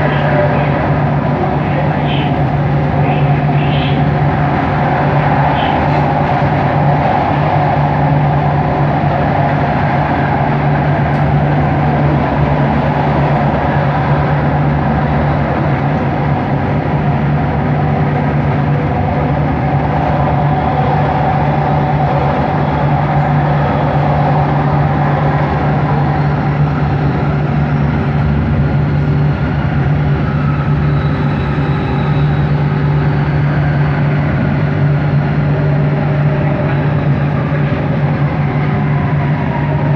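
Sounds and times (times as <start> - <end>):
train motor hum: 0.0 - 39.9
train rolling noise: 0.0 - 39.9.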